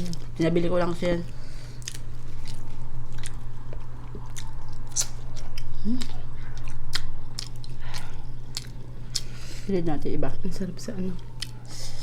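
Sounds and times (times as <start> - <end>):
chewing and lip-smacking: 1.8 - 9.4, 11.2 - 11.7.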